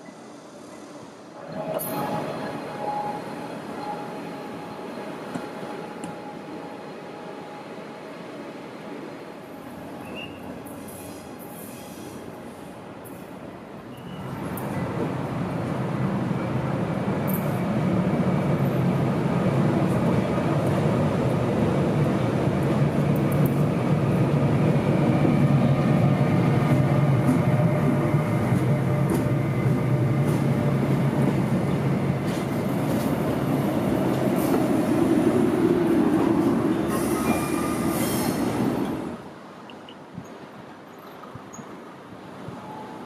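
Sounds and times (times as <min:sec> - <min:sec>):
train wheels rumbling on rails: 0:10.1 - 0:39.4.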